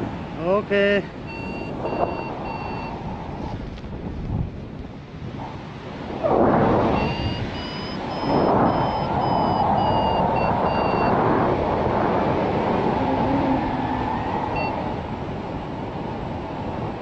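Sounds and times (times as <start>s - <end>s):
wind rushing over microphone: 0.0s - 17.0s
variometer beeping: 1.2s - 3.0s, 6.9s - 11.2s, 14.5s - 15.1s.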